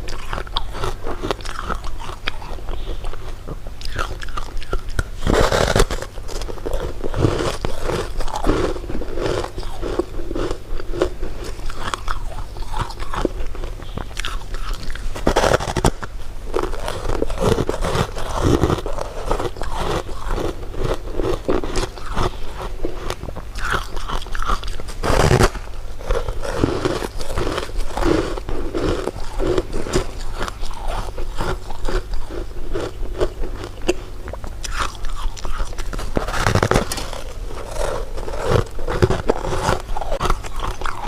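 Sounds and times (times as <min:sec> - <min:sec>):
person chewing crunchy food: 0:00.0 - 0:41.0.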